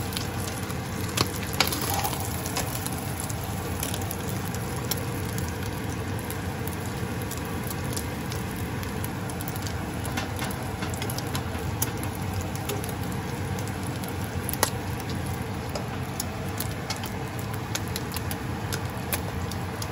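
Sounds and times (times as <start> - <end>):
oil crackles and pops: 0.0 - 19.9
omelette sizzling in oil: 0.0 - 19.9.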